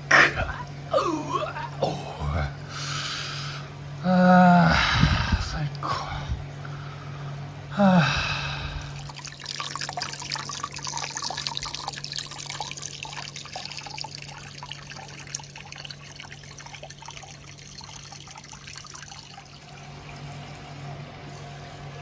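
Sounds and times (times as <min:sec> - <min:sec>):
constant low hum: 0:00.0 - 0:22.0
water trickling and splashing: 0:08.8 - 0:22.0.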